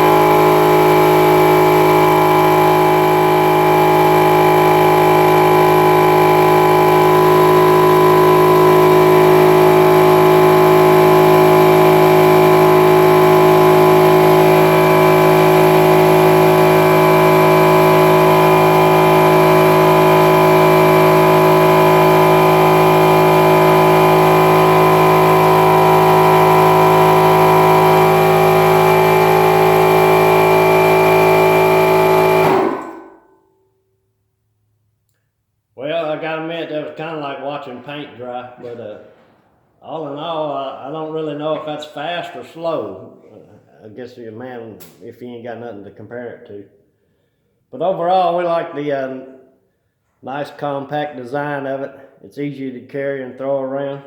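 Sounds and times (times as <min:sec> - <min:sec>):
air compressor running: 0:00.0 - 0:33.4.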